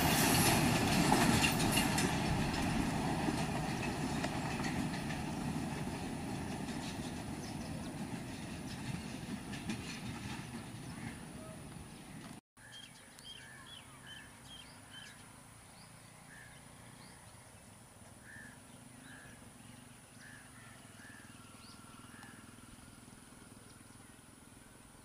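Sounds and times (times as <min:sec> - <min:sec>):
birds calling: 0:10.6 - 0:24.7.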